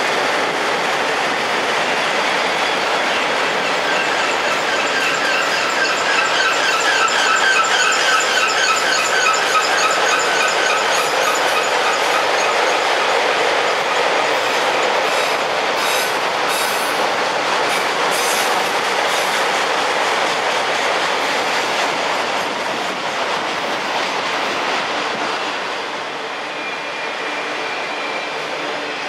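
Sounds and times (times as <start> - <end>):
train wheels rumbling on rails: 0.0 - 29.0
high wheel squeal: 3.6 - 12.9.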